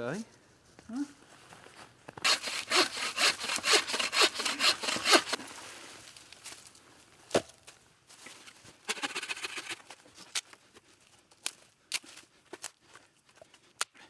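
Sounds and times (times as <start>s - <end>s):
hand saw rasping through wood: 2.2s - 5.5s, 8.9s - 9.8s.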